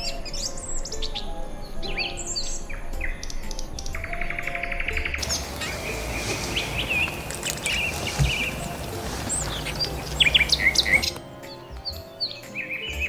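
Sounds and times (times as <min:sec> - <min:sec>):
small birds chirping: 0:00.0 - 0:13.0
steady rushing noise: 0:05.2 - 0:11.2.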